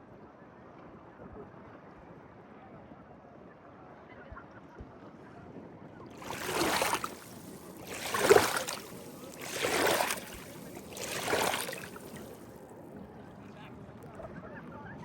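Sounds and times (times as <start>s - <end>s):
water splashing and swishing: 6.1s - 12.6s.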